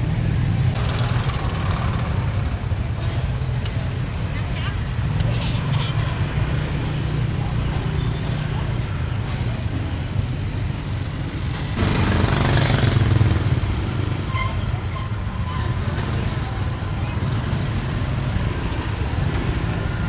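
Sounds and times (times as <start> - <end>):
motor vehicle passing: 11.7 - 20.0.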